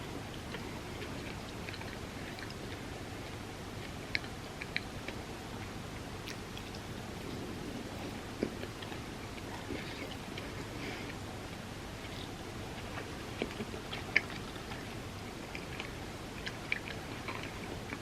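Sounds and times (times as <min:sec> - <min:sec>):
background hiss: 0:00.0 - 0:18.0
chewing mouth sounds: 0:00.2 - 0:11.2, 0:12.0 - 0:18.0.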